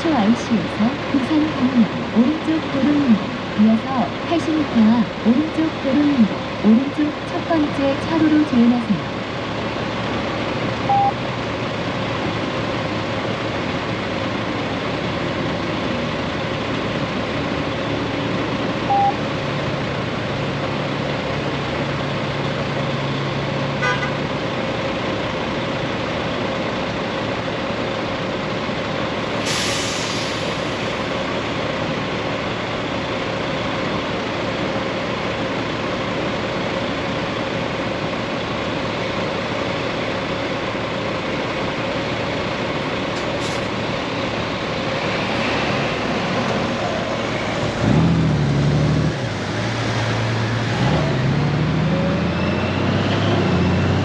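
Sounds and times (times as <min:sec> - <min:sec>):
wind and road noise: 0:00.0 - 0:54.0
short beeps: 0:10.9 - 0:11.2, 0:18.9 - 0:19.2
air brake hiss: 0:29.4 - 0:31.0, 0:43.4 - 0:43.8.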